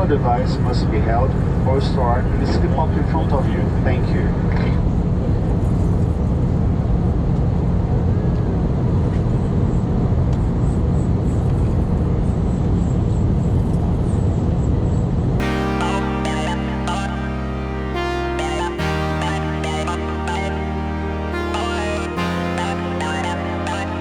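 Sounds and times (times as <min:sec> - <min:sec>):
electronic music: 0:15.4 - 0:24.0.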